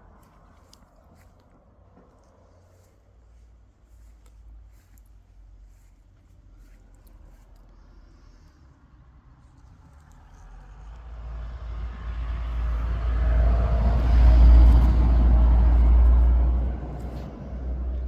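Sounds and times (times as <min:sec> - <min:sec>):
motor vehicle passing by: 0:06.6 - 0:18.0.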